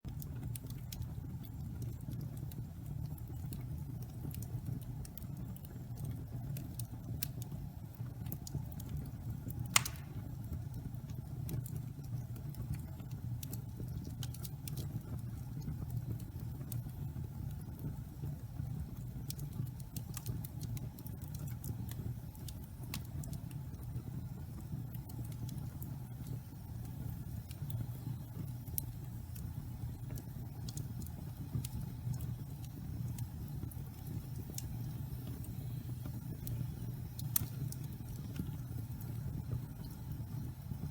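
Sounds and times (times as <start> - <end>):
logs crackling and popping: 0.1 - 40.9
low rumble of flame: 0.1 - 40.9
loud sharp pop: 9.7 - 10.2.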